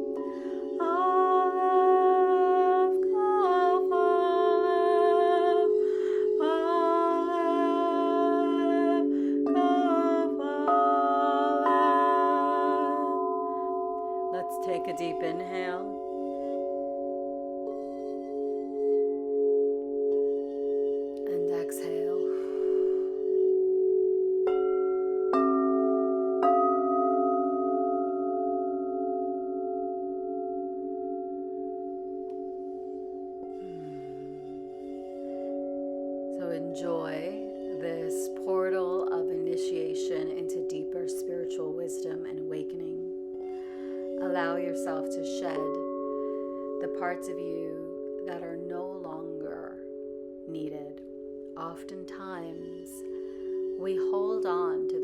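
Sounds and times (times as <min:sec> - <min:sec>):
woman singing wordless notes: 0:00.0 - 0:16.4, 0:21.2 - 0:22.7, 0:36.4 - 0:43.2, 0:44.1 - 0:46.1, 0:46.7 - 0:55.0
singing bowls droning: 0:00.0 - 0:55.0.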